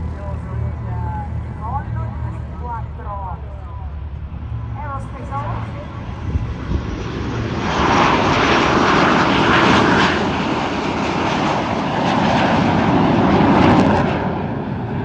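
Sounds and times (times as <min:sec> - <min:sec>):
jets flying past roaring: 0:00.0 - 0:15.0.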